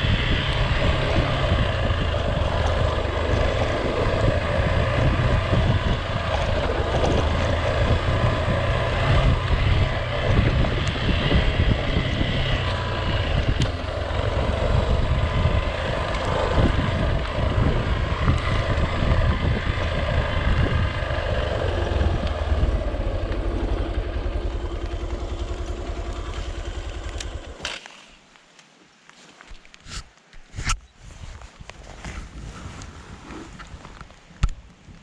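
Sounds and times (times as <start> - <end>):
vehicle engine running: 0.0 - 27.6.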